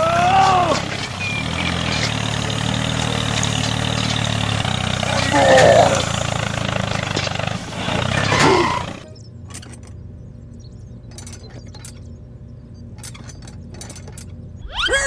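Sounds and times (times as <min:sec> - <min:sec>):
toy tractor engine noise: 0:00.0 - 0:10.1
low steady hum: 0:08.4 - 0:15.0.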